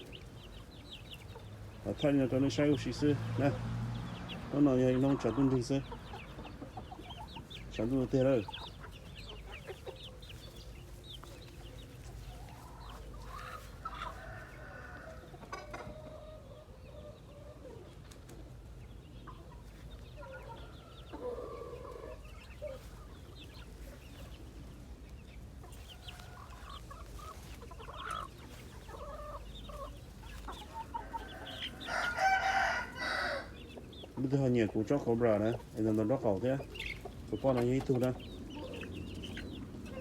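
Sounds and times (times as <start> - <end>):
chickens clucking softly: 0.0 - 40.0.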